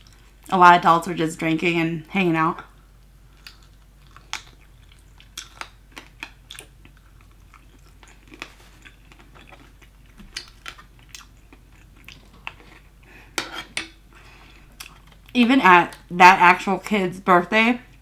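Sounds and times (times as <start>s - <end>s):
person chewing crunchy food: 2.7s - 16.1s.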